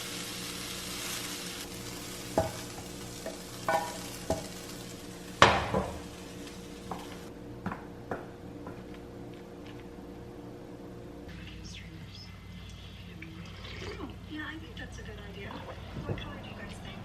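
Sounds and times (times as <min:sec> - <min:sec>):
food sizzling in a pan: 0:00.0 - 0:07.3
utensil clinking against cookware: 0:03.2 - 0:04.6.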